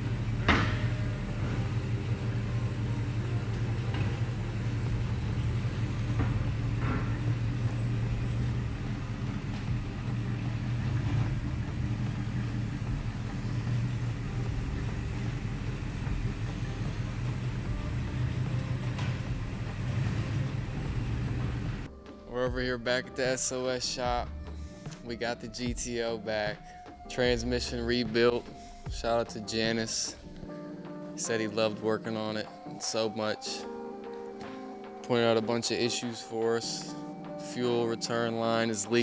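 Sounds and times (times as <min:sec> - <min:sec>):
car engine running: 0:00.0 - 0:21.9.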